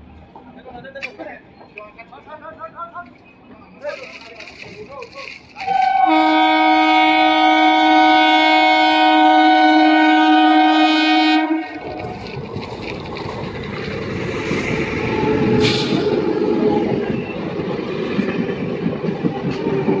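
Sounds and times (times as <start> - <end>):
train wheels rumbling and clattering: 0.0 - 20.0
train horn: 5.6 - 12.1
brief hiss: 15.6 - 16.2.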